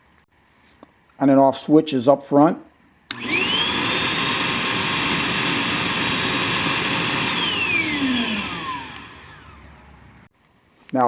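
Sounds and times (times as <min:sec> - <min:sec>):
vacuum motor winding down: 0:03.1 - 0:10.3
wet dry vacuum whining: 0:03.1 - 0:10.3.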